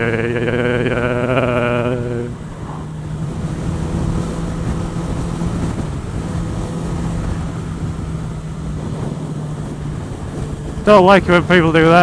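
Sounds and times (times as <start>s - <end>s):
motorcycle engine cruising: 0.0s - 12.0s
wind noise on microphone: 2.5s - 12.0s.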